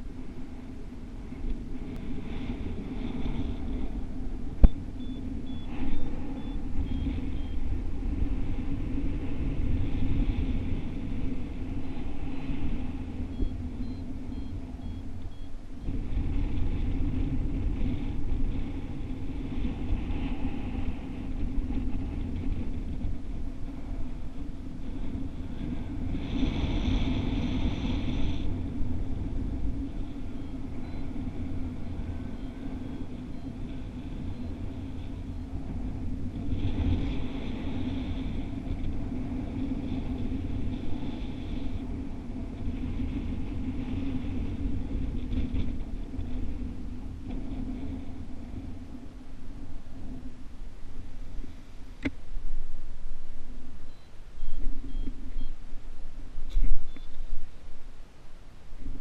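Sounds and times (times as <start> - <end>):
wind rumble on microphone: 0.0 - 59.0
higher wind hiss: 15.1 - 33.3.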